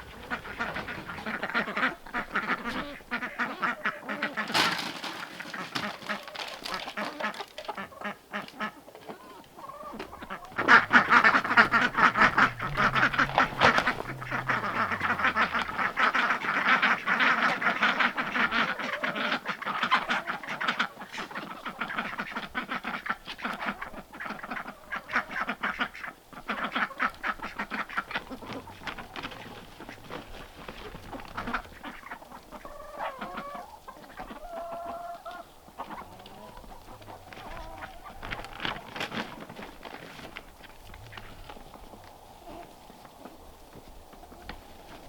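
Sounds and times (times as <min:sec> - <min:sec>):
poultry clucking and quacking: 0:00.0 - 0:45.0.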